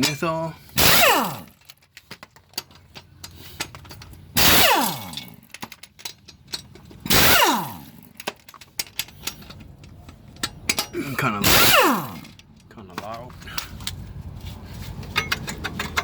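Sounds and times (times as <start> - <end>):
impact wrench bursts: 0.0 - 1.8, 3.1 - 5.9, 7.0 - 9.6, 10.4 - 13.8
metallic ticks and clicks: 5.0 - 11.0.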